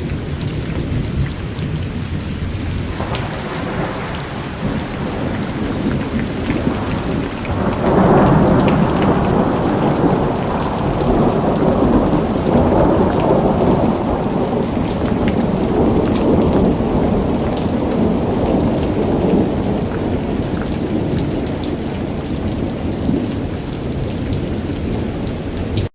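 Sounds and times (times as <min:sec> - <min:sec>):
heavy rain on hard surfaces: 0:00.0 - 0:25.9
rolling thunder: 0:00.0 - 0:25.9.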